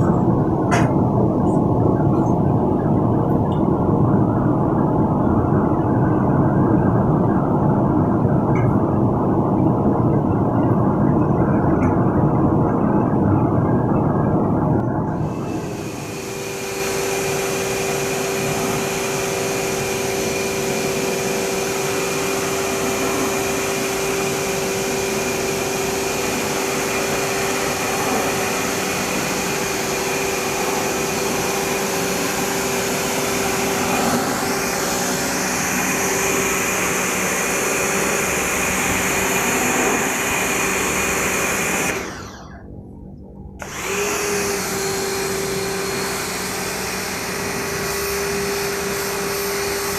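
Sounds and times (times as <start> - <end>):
rushing noise: 0.0 - 49.9
machine motor humming: 14.8 - 42.6, 43.6 - 49.9.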